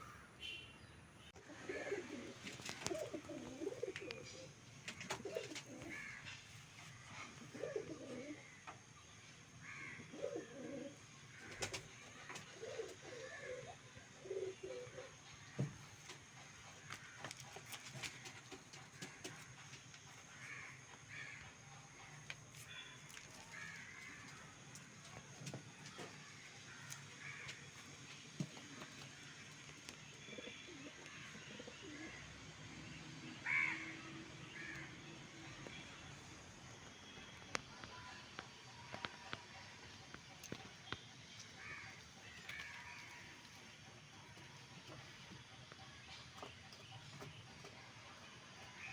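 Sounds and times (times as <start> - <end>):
pigeons cooing: 1.4 - 6.2, 7.0 - 8.7, 9.9 - 15.6, 30.1 - 32.5
crows cawing: 5.0 - 6.4, 9.6 - 13.8, 16.8 - 17.4, 20.3 - 21.6, 22.7 - 24.6, 25.9 - 27.7, 33.4 - 35.0, 41.6 - 43.4.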